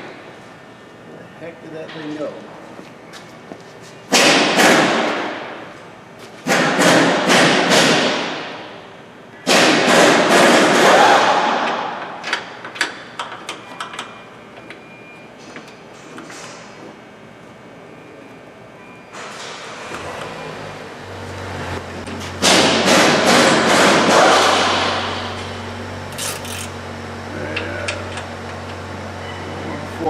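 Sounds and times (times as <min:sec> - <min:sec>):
metal tools clattering: 0:26.1 - 0:26.8.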